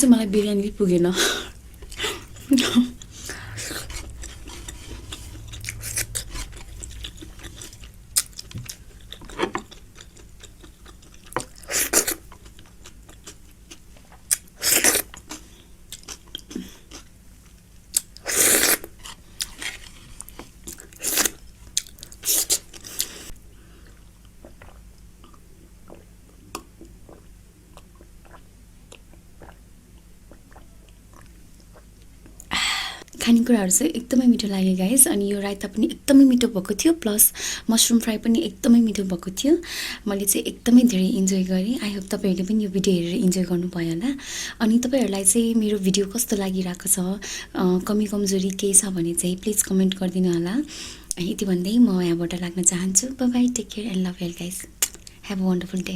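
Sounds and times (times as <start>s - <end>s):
person chewing wetly: 1.7s - 17.1s, 17.9s - 32.5s
small mouth clicks: 54.8s - 55.2s.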